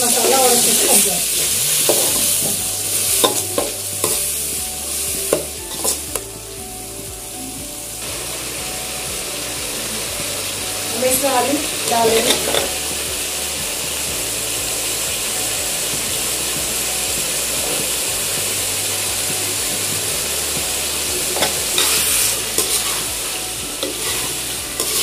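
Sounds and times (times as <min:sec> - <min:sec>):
potatoes sizzling in a pan: 0:00.0 - 0:25.0
steel spoon scraping a pan: 0:00.2 - 0:04.5, 0:05.3 - 0:06.2, 0:21.3 - 0:25.0.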